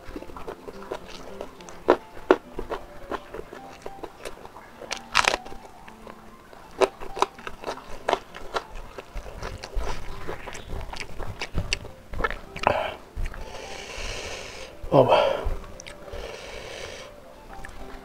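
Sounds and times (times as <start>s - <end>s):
chewing crunchy chili: 0.0s - 18.0s.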